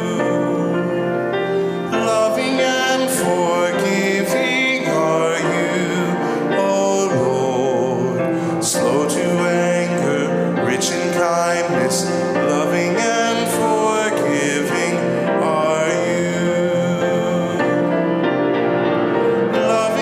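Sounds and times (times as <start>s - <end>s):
church singing with instruments: 0.0s - 20.0s.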